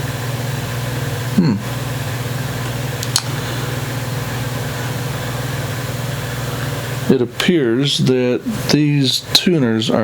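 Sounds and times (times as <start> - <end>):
fan humming: 0.0 - 10.0
person muttering: 1.3 - 1.7
sharp click: 3.0 - 3.3.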